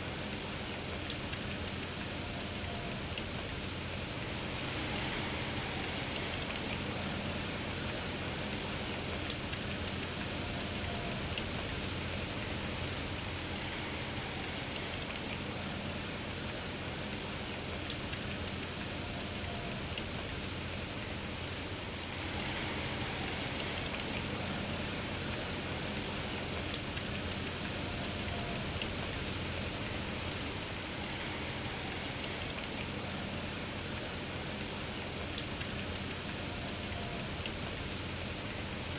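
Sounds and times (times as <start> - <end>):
rain hiss: 0.0 - 38.9
faint ticks: 0.5 - 4.4, 7.7 - 13.8, 17.7 - 21.4, 25.2 - 31.4, 34.6 - 38.9.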